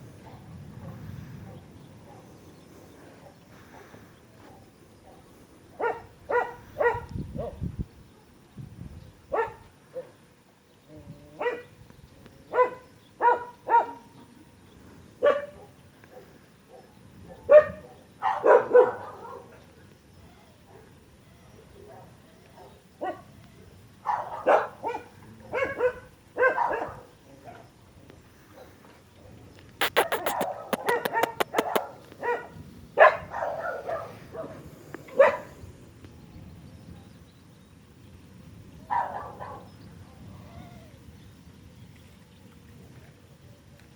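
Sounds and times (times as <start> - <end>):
dog barking: 4.4 - 7.6, 9.3 - 10.1, 11.4 - 11.7, 12.5 - 14.1, 15.2 - 19.6, 21.8 - 23.3, 24.0 - 27.6, 29.8 - 35.5, 38.9 - 39.7.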